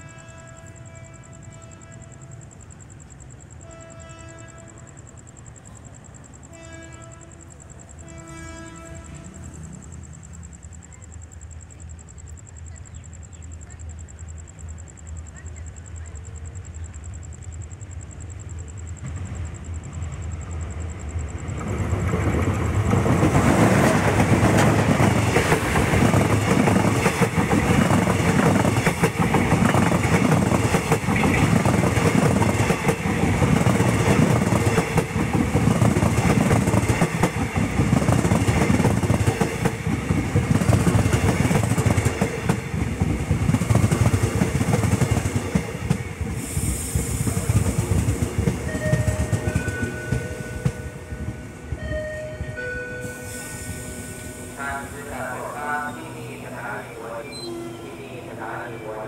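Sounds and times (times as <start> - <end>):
diesel locomotive passing: 0.0 - 59.0
train wheels clickety-clack: 20.9 - 51.8.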